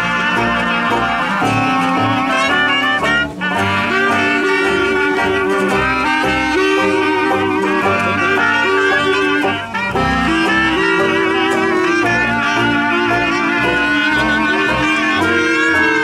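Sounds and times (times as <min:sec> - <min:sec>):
steady bass beat: 0:00.0 - 0:16.0
wind instruments playing melody: 0:00.0 - 0:16.0.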